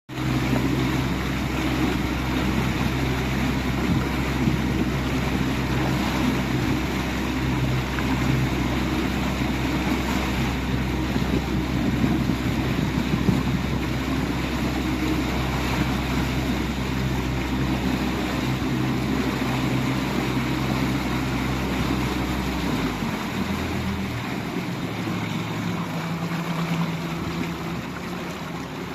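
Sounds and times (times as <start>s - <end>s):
outboard motor running: 0.1s - 28.9s
water noise: 0.1s - 28.9s
wind noise: 10.2s - 14.7s.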